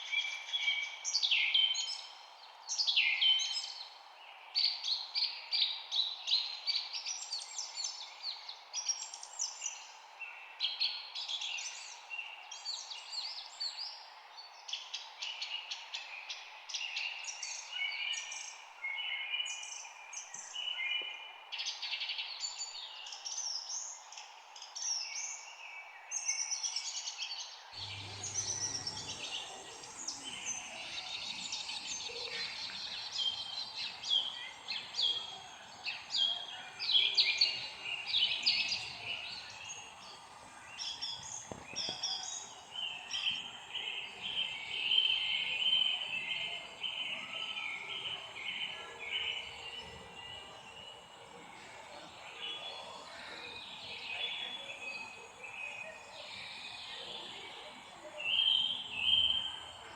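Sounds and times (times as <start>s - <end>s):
songbirds chirping and trilling: 0.0s - 59.9s
background hiss: 27.8s - 59.9s.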